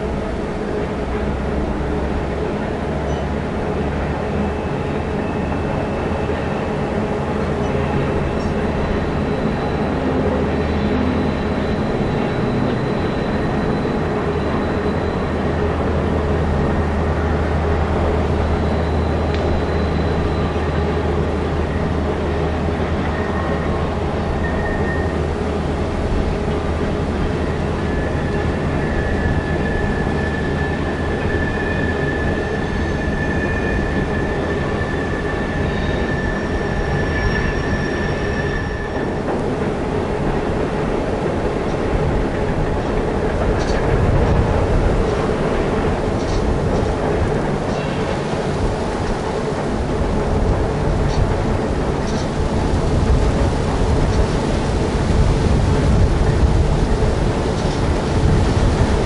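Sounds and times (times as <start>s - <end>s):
diesel locomotive hum: 0.0s - 59.0s
train wheels rumbling on rails: 0.0s - 59.0s
high steel wheel squeal: 4.4s - 16.8s, 18.2s - 22.1s, 22.7s - 25.3s, 27.3s - 39.3s.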